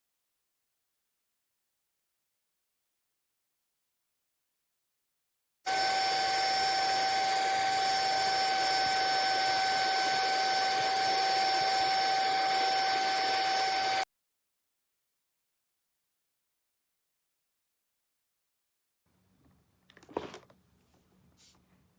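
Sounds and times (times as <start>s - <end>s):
handheld vacuum cleaner running: 5.7s - 14.0s.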